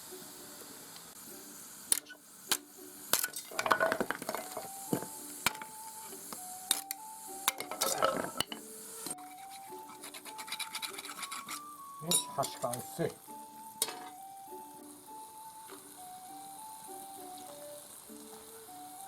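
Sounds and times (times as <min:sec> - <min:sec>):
soft background music: 0:00.0 - 0:19.0
knife cutting wood: 0:09.2 - 0:11.7.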